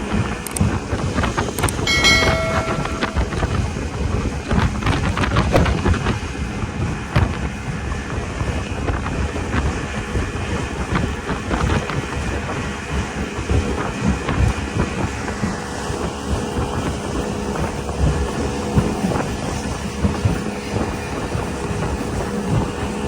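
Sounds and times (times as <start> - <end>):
speedboat engine and water rush: 0.0 - 23.0
wind buffeting microphone: 0.0 - 23.0
irregular knocks: 1.9 - 3.6.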